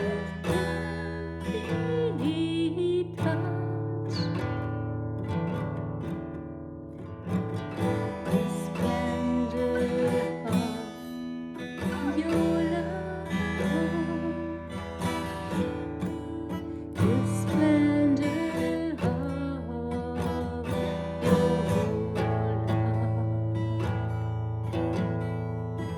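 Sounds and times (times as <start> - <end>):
person singing: 0.0 - 4.3, 7.7 - 23.6
acoustic guitar: 0.0 - 25.9.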